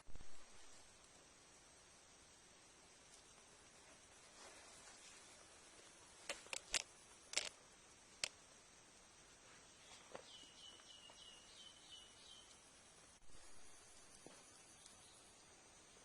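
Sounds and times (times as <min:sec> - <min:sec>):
faint hiss: 0:00.0 - 0:16.0
sharp clicks: 0:06.2 - 0:07.6.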